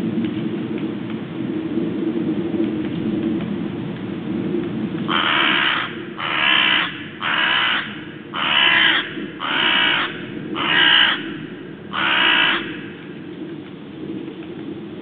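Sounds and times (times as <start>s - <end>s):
low rushing background: 0.0s - 15.0s
crow cawing: 5.1s - 13.0s.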